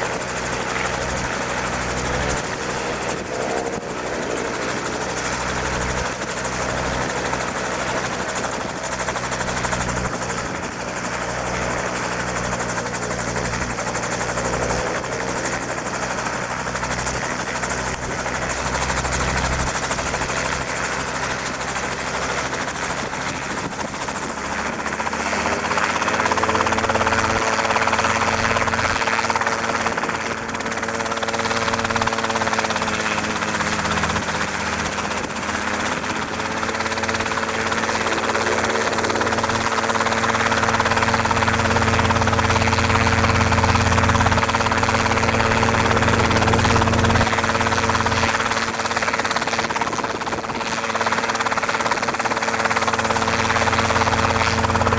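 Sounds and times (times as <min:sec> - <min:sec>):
helicopter rotor and engine drone: 0:00.0 - 0:54.9.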